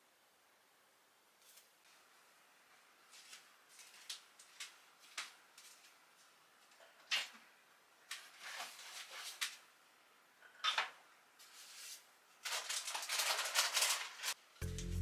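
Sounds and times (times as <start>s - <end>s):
kitchen items rustling and clattering: 3.0s - 9.7s, 10.4s - 14.4s.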